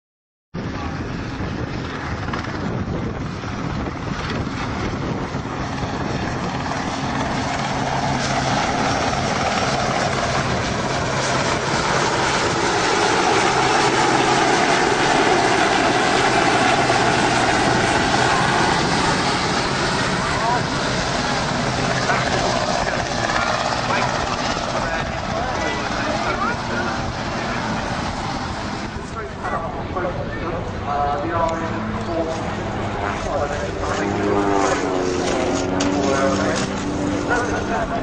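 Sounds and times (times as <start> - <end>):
helicopter rotors and engines: 0.6 - 38.0.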